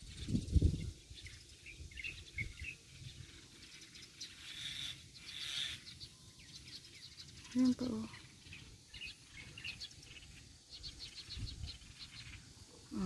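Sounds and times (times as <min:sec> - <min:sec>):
small birds chirping: 0:00.0 - 0:13.0
soft hissing rush: 0:00.0 - 0:13.0.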